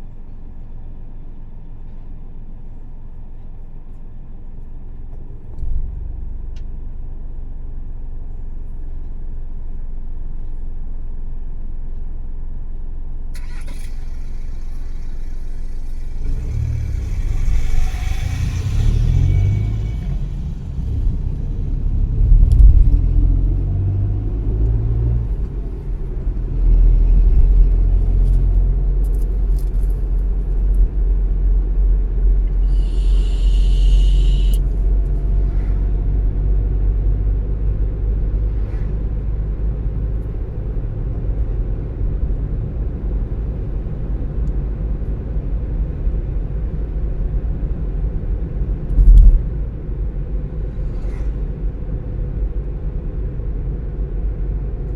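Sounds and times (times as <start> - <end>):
car engine and tyres rumbling: 0.0 - 54.9
short hiss: 32.6 - 34.6.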